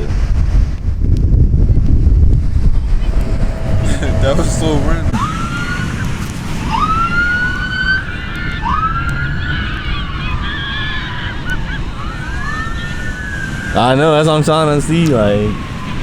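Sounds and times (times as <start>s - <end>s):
low rumble: 1.6s - 6.6s
police sirens wailing: 3.0s - 16.0s.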